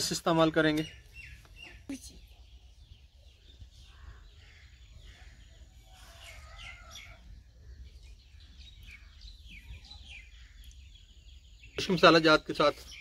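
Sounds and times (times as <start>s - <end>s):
faint birds chirping: 0.0s - 13.0s.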